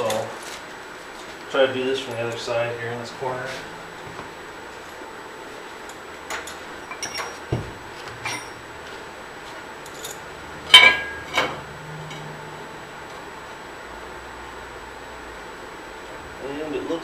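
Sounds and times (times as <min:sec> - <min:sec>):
metal clinks and knocks: 0:06.3 - 0:08.6
ringing metal clank: 0:08.2 - 0:08.6, 0:09.9 - 0:12.3.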